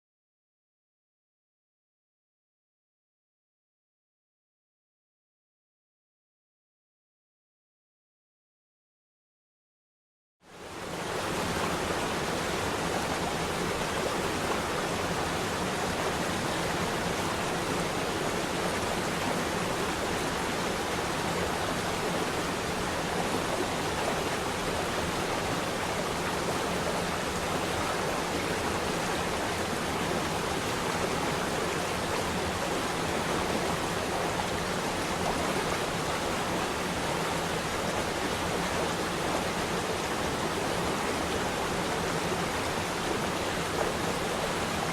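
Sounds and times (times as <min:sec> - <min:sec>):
water rushing steadily: 0:10.4 - 0:44.9.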